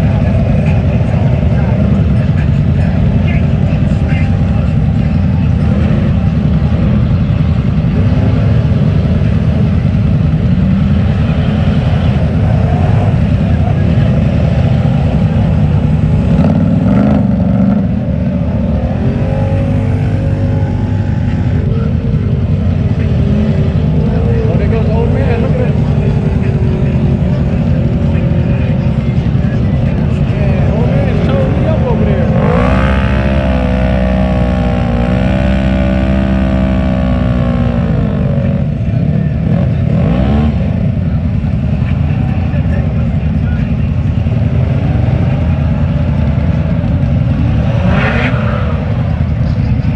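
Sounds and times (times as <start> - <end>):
truck engines rumbling: 0.0 - 49.9.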